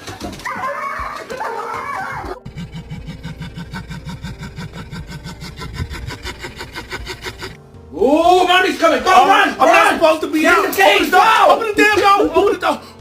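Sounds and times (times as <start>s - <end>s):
low rhythmic pulsing: 2.3s - 7.9s.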